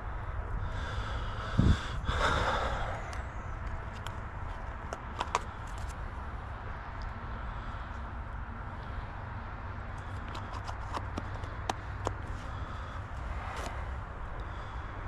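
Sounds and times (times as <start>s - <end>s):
steady low rumble: 0.0s - 10.2s
person exhaling: 0.6s - 3.2s.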